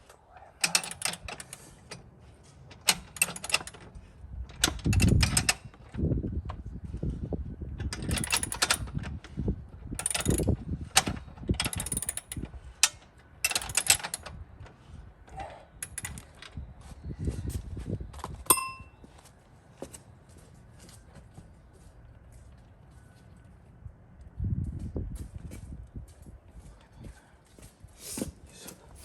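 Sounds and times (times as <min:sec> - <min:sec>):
metal tools clinking and clattering: 0:15.8 - 0:16.4, 0:18.5 - 0:18.9
sharp ringing metallic clink: 0:18.5 - 0:19.0.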